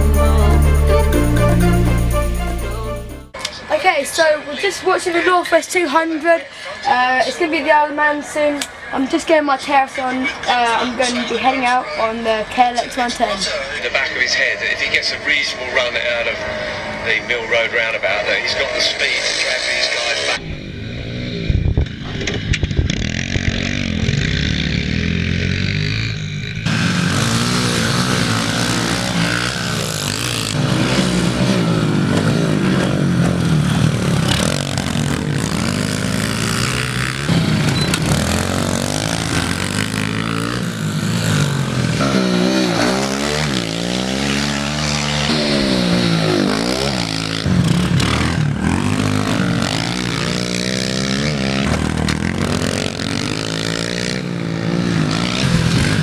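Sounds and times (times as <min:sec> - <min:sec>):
pit bike engine revving: 0:19.2 - 0:56.0.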